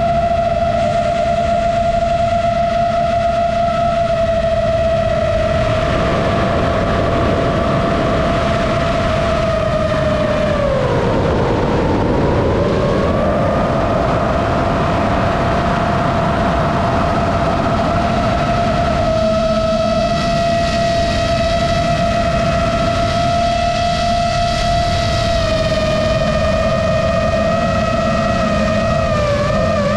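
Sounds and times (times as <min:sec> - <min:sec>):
model airplane motor whining: 0:00.0 - 0:29.9
rush of air: 0:05.4 - 0:18.6.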